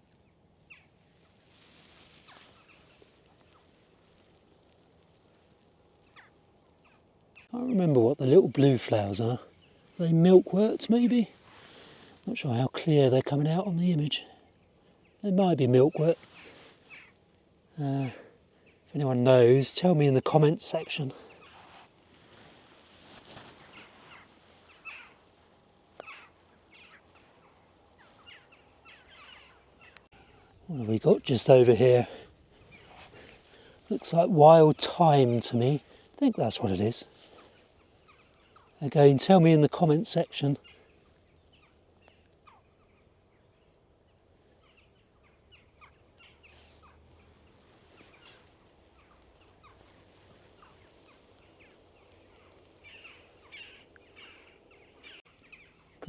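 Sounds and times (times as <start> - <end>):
faint jackdaws calling: 0.0 - 12.6, 13.4 - 19.4, 20.3 - 56.0
low rumble of wind: 0.0 - 56.0
jackdaws calling: 15.9 - 17.3, 23.5 - 25.3, 26.0 - 34.4, 44.5 - 56.0.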